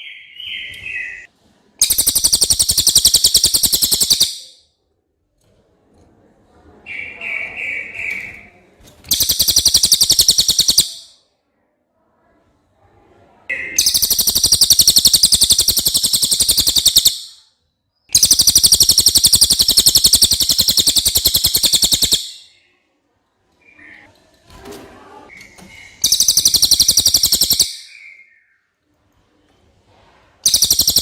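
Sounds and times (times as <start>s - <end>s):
bird trilling: 0.0s - 4.5s, 9.1s - 11.1s, 13.8s - 17.4s, 18.1s - 22.6s, 26.0s - 28.3s, 30.4s - 31.0s.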